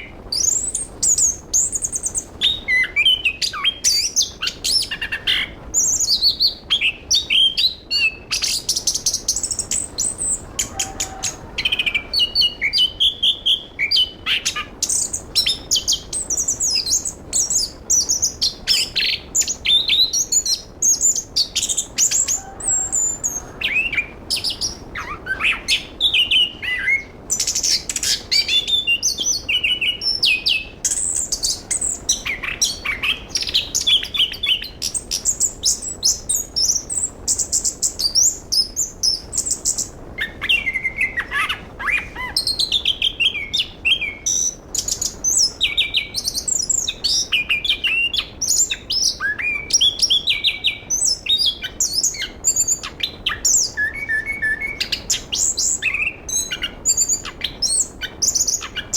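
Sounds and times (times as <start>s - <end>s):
thrush singing: 17.1s - 35.3s.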